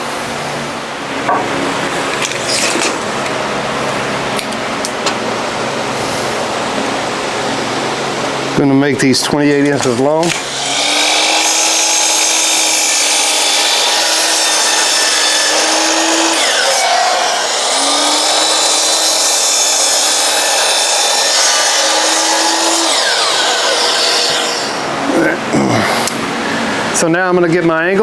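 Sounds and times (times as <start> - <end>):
power saw cutting wood: 9.2 - 26.7.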